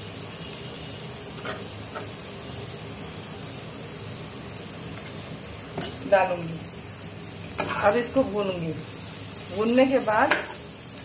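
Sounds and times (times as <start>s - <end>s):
potatoes sizzling in oil: 0.0s - 11.0s.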